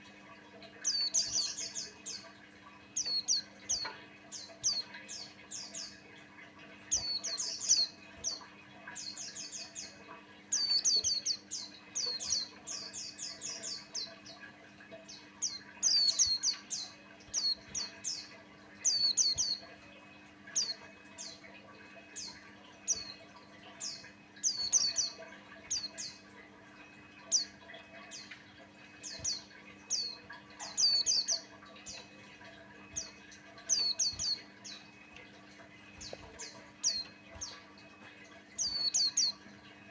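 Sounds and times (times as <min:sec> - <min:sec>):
faint steady hum: 0:00.0 - 0:39.9
bird high chirps: 0:03.0 - 0:06.0, 0:06.9 - 0:14.4, 0:15.1 - 0:19.8, 0:22.0 - 0:26.2, 0:26.9 - 0:35.2, 0:38.6 - 0:39.6.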